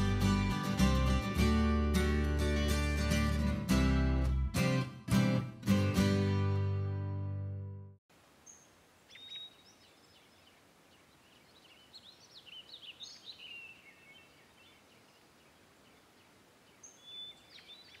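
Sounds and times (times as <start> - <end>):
background hiss: 8.1 - 18.0
faint bird calls: 8.4 - 18.0.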